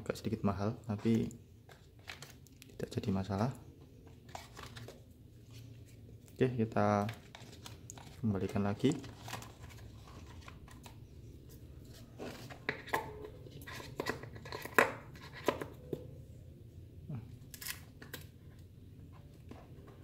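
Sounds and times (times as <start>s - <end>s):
plastic wrap and cardboard rustling: 7.0s - 10.8s.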